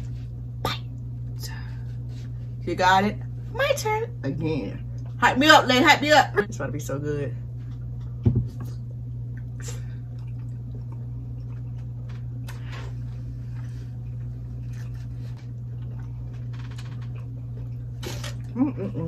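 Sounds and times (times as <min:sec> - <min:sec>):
steady low hum: 0:00.0 - 0:19.0
wet chewing and lip-smacking: 0:07.7 - 0:18.6.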